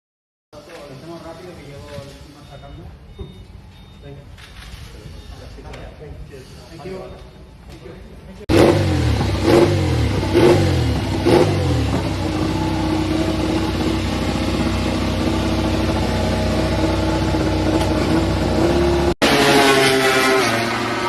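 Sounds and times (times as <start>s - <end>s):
motorcycle engine revving: 8.5s - 21.0s.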